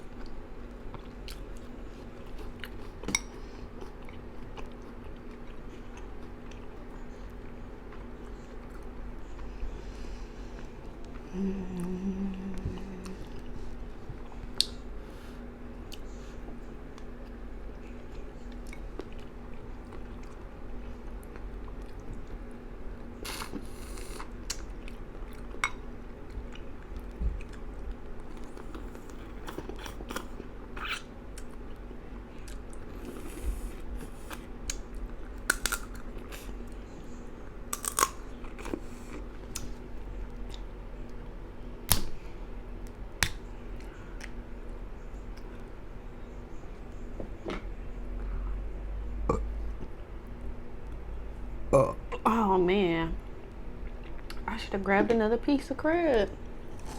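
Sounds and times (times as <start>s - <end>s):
steady low hum: 0.0s - 56.9s
chewing and biting food: 0.1s - 9.5s, 37.8s - 41.2s.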